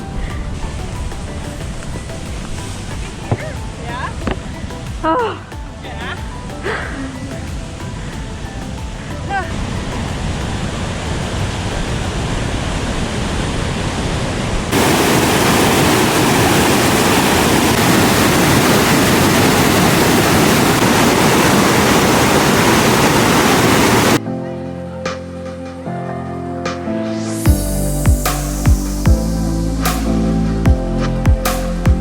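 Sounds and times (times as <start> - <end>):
background music: 0.0 - 12.3, 19.4 - 32.0
whitewater rushing: 0.0 - 24.2.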